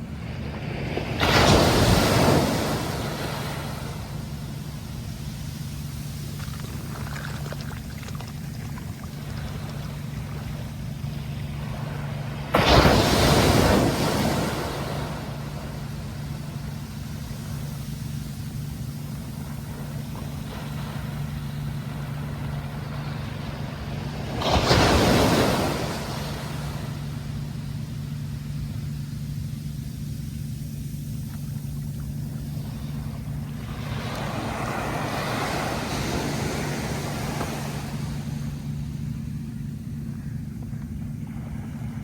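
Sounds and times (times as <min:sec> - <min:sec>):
sea waves crashing: 0:00.0 - 0:40.4
steady low hum: 0:00.0 - 0:42.0.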